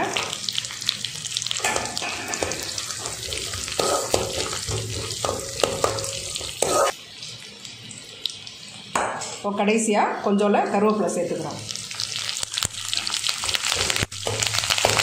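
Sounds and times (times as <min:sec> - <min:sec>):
frying sizzle with crackles: 0:00.0 - 0:09.9, 0:10.6 - 0:15.0
spoon scraping metal pan: 0:01.8 - 0:06.9.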